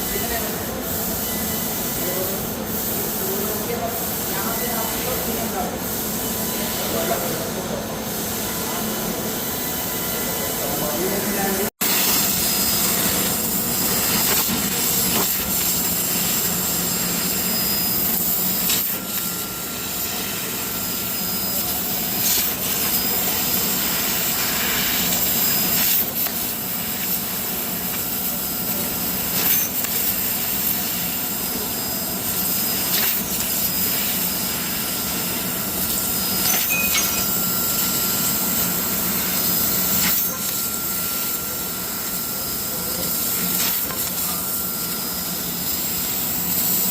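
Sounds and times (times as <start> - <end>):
laser cutter hiss: 0.0 - 46.9.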